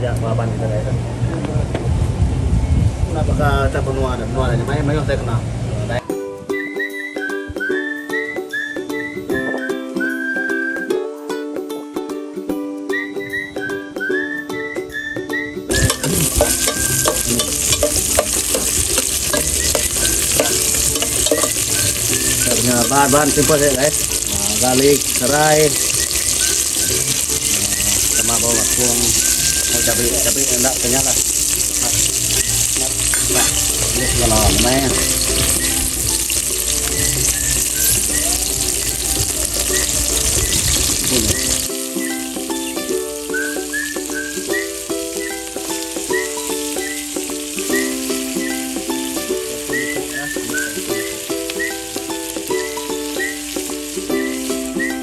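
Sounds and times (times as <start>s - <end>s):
background music: 6.0s - 55.0s
whistled tune with ukulele: 6.1s - 17.8s, 19.2s - 31.2s, 31.9s - 55.0s
stirrer knocking against pan: 15.7s - 21.8s
food sizzling in a pan: 15.7s - 55.0s.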